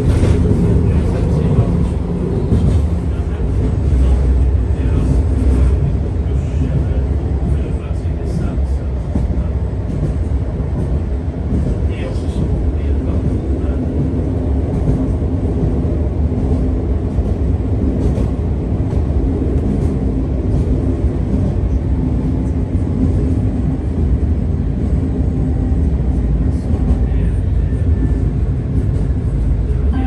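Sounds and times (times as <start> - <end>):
tram wheels rumbling on rail: 0.0 - 30.0.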